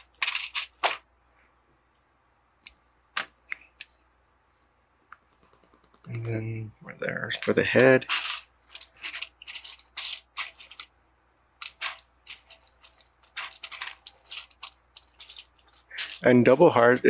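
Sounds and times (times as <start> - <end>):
plastic pieces rattling by hand: 0.0 - 1.0, 7.3 - 10.9, 11.6 - 16.8.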